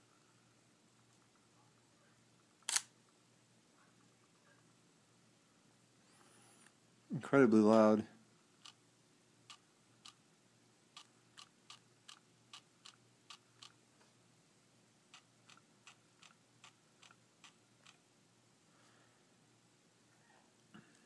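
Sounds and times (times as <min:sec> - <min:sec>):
faint steady hum: 0:00.0 - 0:21.0
lens aperture clicking: 0:02.7 - 0:02.9.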